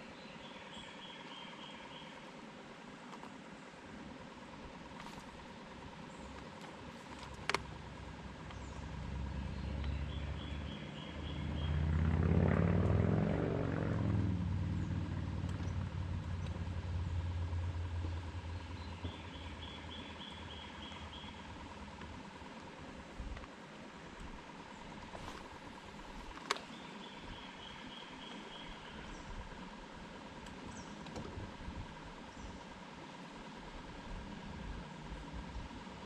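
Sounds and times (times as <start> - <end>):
birds chirping: 0.0 - 2.3, 8.3 - 11.9, 14.7 - 21.9, 24.0 - 29.5
engine humming: 0.0 - 36.0.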